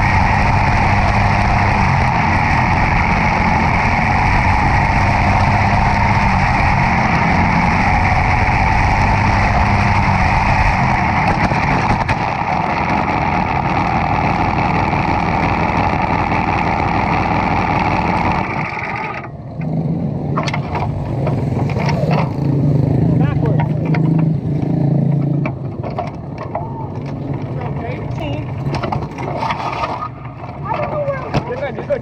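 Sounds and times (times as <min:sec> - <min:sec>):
car engine running at high revs: 0:00.0 - 0:32.0.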